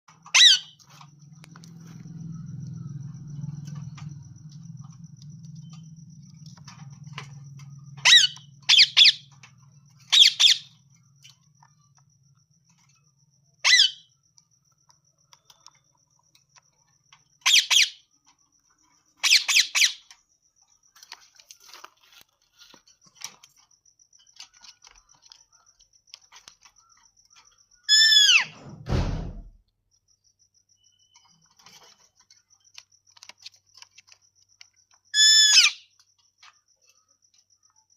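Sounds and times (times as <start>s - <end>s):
parrot squawking: 0.3s - 0.8s, 8.0s - 9.3s, 10.1s - 10.7s, 13.6s - 14.0s, 17.4s - 18.0s, 19.2s - 20.0s, 27.9s - 28.5s, 35.2s - 35.8s
low hum: 1.0s - 8.5s.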